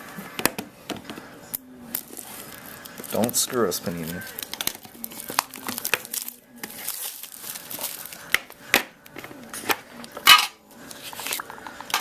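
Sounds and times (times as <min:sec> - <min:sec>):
wrapper being torn and crinkled: 0:01.9 - 0:08.6.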